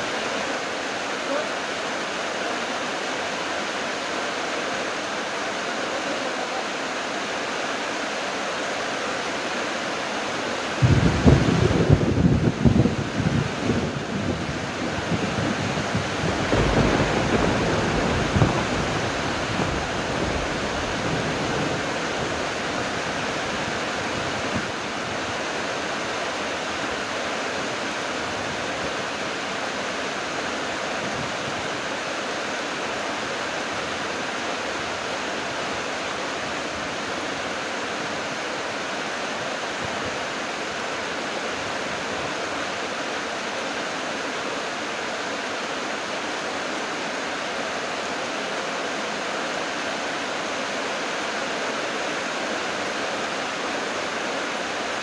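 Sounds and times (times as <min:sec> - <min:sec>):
heavy rain falling: 0:00.0 - 0:55.0
wind buffeting microphone: 0:10.8 - 0:25.4.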